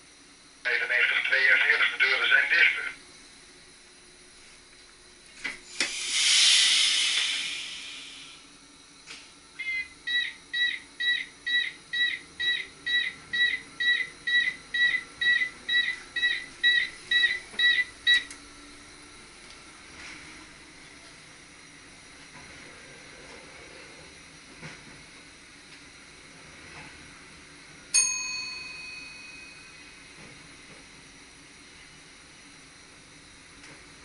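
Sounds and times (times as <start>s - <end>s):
compressed air hissing: 5.6s - 8.5s
rapid electronic warning beep: 9.6s - 18.3s.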